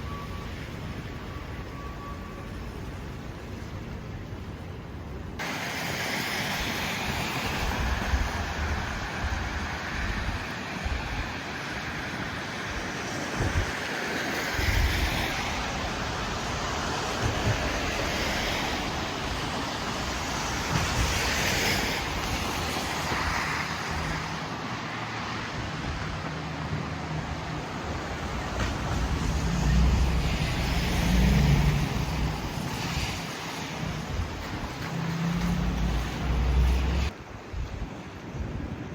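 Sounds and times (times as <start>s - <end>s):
city street traffic: 0.0s - 38.9s
wind buffeting microphone: 7.0s - 24.4s, 25.6s - 38.9s
vehicle engine hum: 22.2s - 37.2s.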